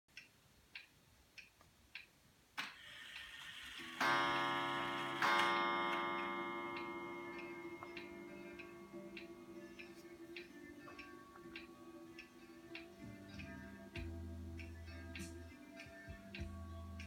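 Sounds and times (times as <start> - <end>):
sharp regular ticking: 0.1 - 17.0
sustained music chords: 3.8 - 17.0.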